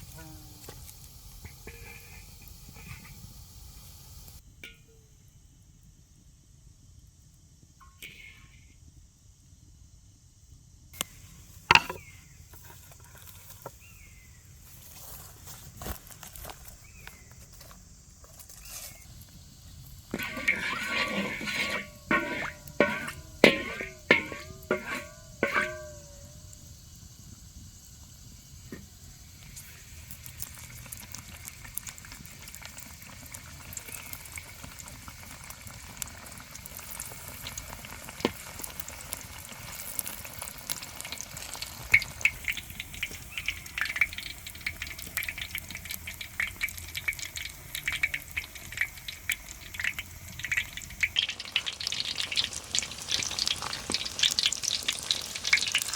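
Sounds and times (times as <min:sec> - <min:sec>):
food sizzling in a pan: 0:00.0 - 0:04.4, 0:11.0 - 0:17.3, 0:18.3 - 0:55.9.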